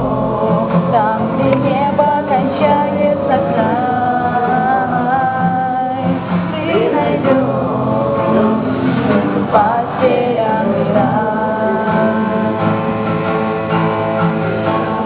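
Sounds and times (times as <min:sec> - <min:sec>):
group singing: 0:00.0 - 0:15.0.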